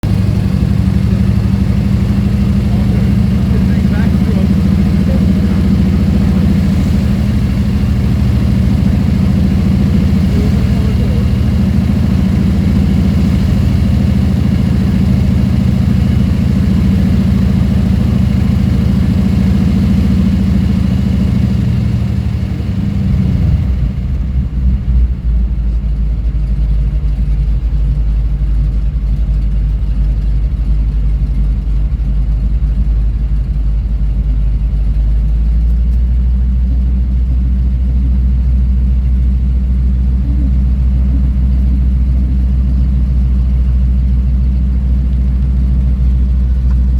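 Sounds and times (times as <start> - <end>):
propeller engine running: 0.0 - 46.9.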